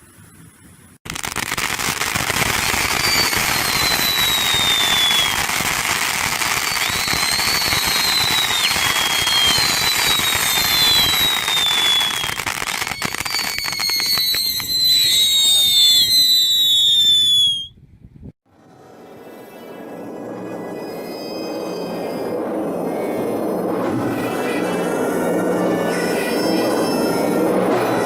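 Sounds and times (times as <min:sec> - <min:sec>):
fireworks crackling: 0:01.0 - 0:17.7
firework whistles: 0:01.1 - 0:17.8, 0:19.3 - 0:28.0.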